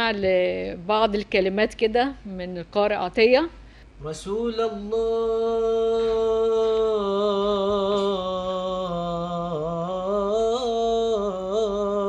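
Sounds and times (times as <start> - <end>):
man singing unaccompanied: 4.0 - 12.0.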